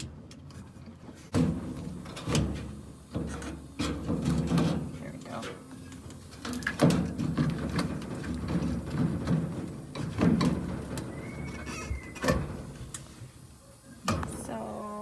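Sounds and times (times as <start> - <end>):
washing machine parts clunking: 6.4 - 12.8
high squeak: 11.1 - 12.3.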